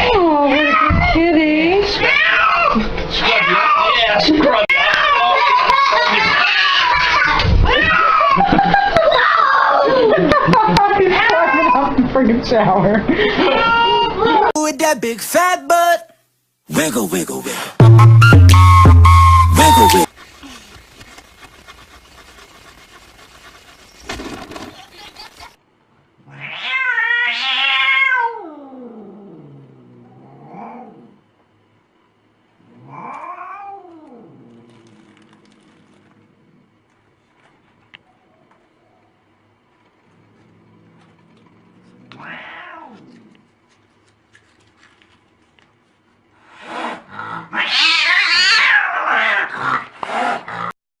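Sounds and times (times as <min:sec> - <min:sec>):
cat yowling: 0:02.0 - 0:08.4, 0:26.3 - 0:28.9, 0:32.9 - 0:34.3, 0:42.1 - 0:43.1, 0:47.5 - 0:49.5
cat meowing: 0:26.3 - 0:28.6, 0:47.6 - 0:49.5.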